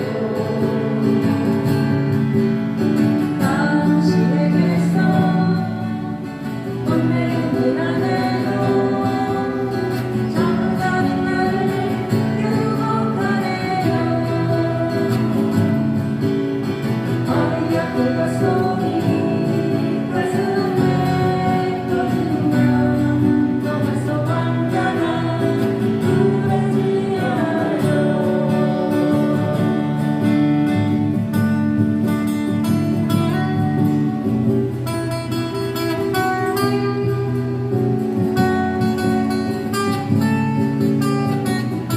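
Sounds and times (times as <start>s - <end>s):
person singing: 0.0s - 2.0s, 3.4s - 30.4s
acoustic guitars strummed and plucked: 0.0s - 41.9s.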